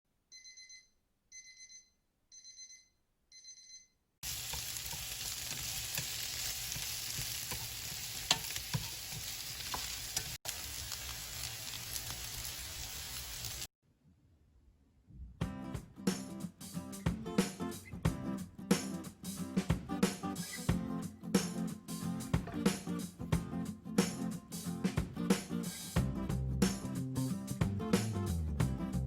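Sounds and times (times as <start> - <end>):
electronic alarm beeping: 0.3 - 4.0
food sizzling in a frying pan: 4.2 - 13.7.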